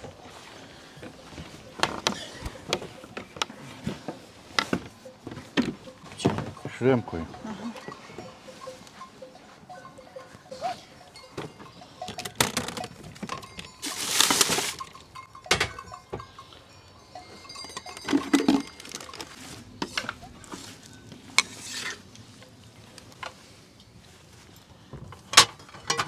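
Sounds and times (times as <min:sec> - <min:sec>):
gear knocks and clinks: 0:11.2 - 0:20.6
rustling scrape: 0:12.6 - 0:15.0, 0:18.0 - 0:24.6.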